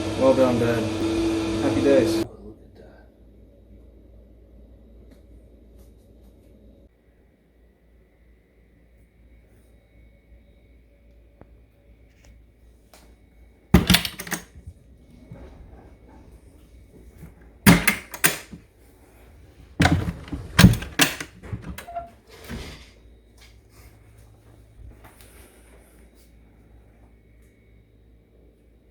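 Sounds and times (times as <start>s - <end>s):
door and latch clunking: 13.8s - 18.6s, 19.5s - 22.9s.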